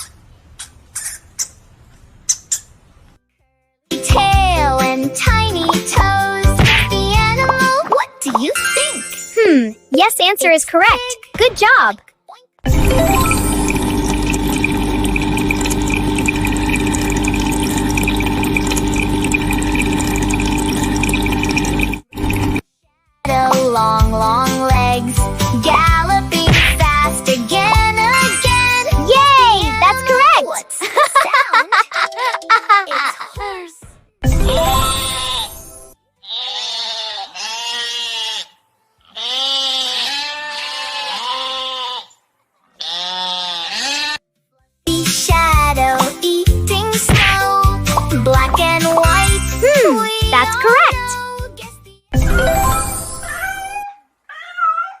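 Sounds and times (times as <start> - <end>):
watery pumping noise: 6.5 - 7.7, 12.7 - 22.6, 25.6 - 29.3, 45.1 - 51.1
animal cries rising and falling: 36.2 - 42.2, 42.8 - 44.2, 53.2 - 55.0.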